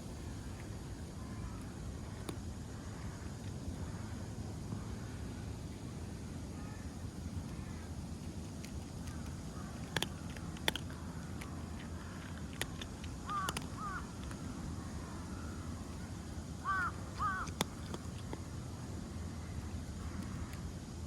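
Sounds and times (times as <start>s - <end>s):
low outdoor rumble: 0.0s - 21.0s
sharp clicks: 8.6s - 14.4s
crow cawing: 13.2s - 14.1s, 16.6s - 17.5s.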